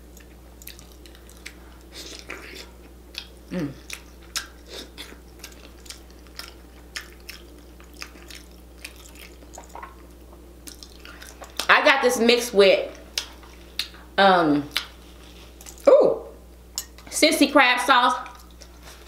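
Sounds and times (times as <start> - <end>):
person chewing food: 0.1 - 11.7, 14.7 - 15.9
short hummed sound: 1.5 - 6.8.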